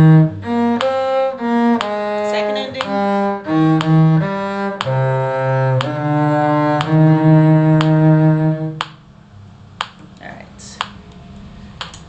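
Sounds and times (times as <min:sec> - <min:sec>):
metronome clicking: 0:00.0 - 0:08.2, 0:08.8 - 0:09.0
cello playing slow tune: 0:00.0 - 0:09.0.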